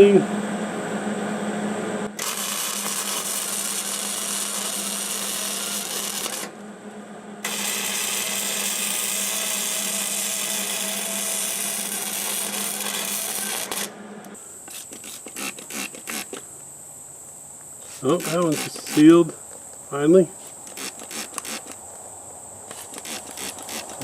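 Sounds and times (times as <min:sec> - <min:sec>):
steady low hum: 0:00.0 - 0:24.0
welder arc crackling: 0:02.1 - 0:14.4, 0:17.9 - 0:19.4.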